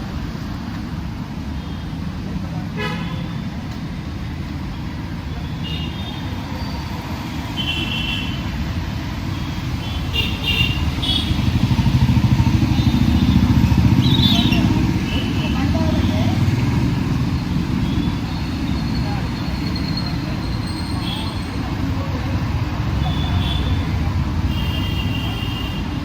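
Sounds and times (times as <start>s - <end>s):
rumble of traffic engines: 0.0s - 26.0s
vehicle passing close: 10.8s - 19.4s.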